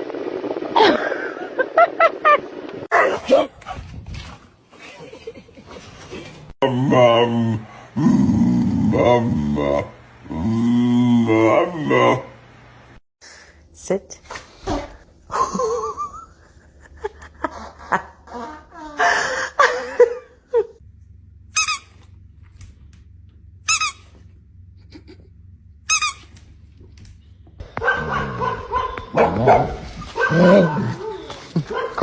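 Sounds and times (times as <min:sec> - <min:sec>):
dog barking: 0:02.9 - 0:03.5, 0:27.8 - 0:32.0
short high-pitched squeaks: 0:21.6 - 0:22.1
dog whining: 0:27.8 - 0:32.0.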